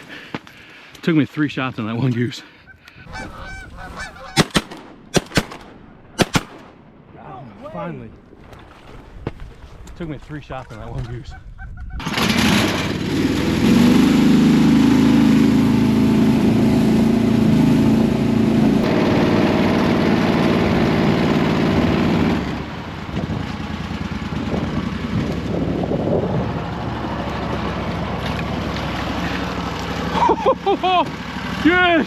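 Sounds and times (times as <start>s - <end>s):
boat motor droning: 12.1s - 32.0s.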